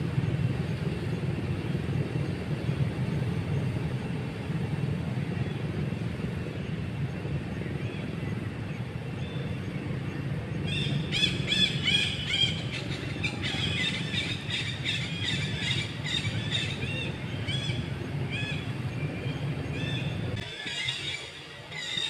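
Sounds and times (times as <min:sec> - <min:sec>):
low steady rumble: 0:00.0 - 0:22.0
small birds chirping: 0:07.6 - 0:22.0.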